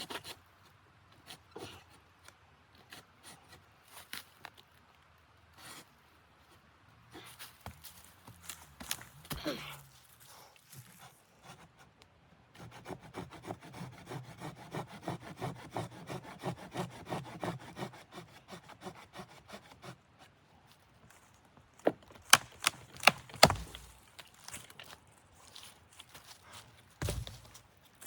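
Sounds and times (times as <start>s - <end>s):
hand saw cutting wood: 12.6s - 20.3s, 22.3s - 24.0s, 27.0s - 27.6s
heavy thump: 27.0s - 27.6s.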